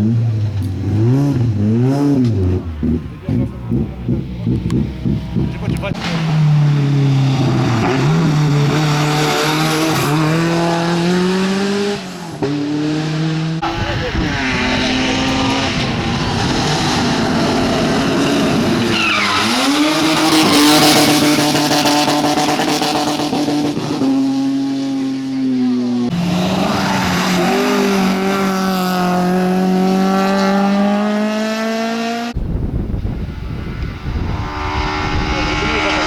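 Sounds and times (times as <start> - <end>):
gear changes: 0.0 - 10.8, 13.5 - 24.0
rally car engine revving: 0.0 - 36.0.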